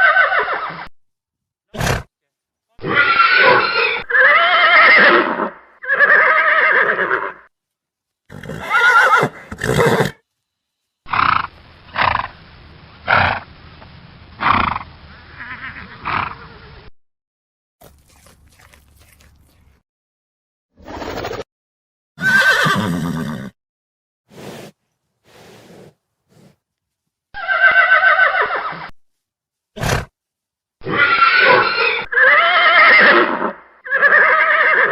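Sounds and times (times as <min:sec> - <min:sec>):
horses neighing: 0:02.8 - 0:07.4, 0:08.3 - 0:10.2, 0:22.2 - 0:23.5, 0:27.4 - 0:28.8, 0:30.8 - 0:34.9.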